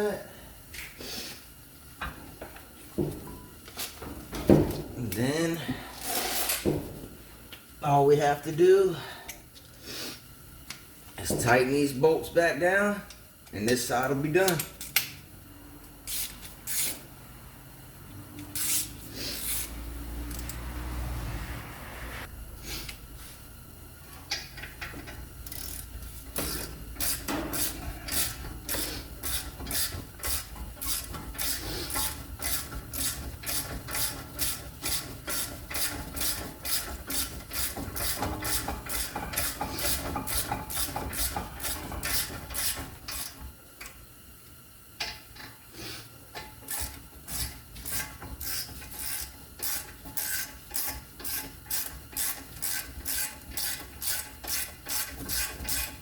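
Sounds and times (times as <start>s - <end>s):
ratchet wrench clicking: 16.1s - 17.0s, 18.4s - 20.6s, 24.3s - 43.4s, 46.7s - 56.0s.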